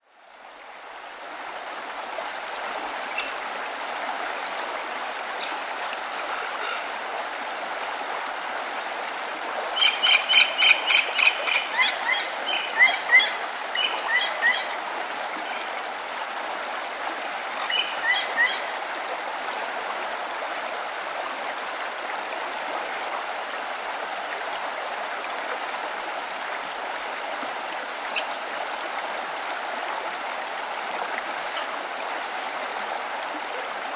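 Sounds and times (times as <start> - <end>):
stream flowing: 0.0 - 33.9
songbird singing: 9.8 - 14.7, 17.7 - 18.7.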